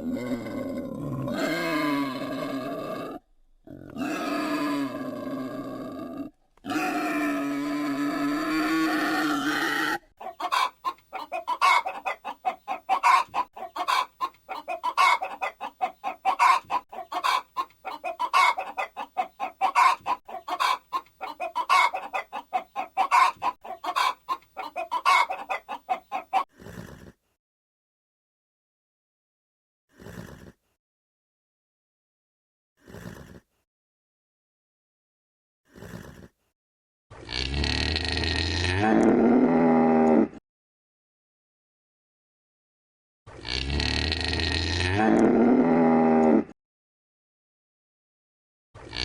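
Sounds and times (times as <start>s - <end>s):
chickens clucking: 10.2s - 26.5s.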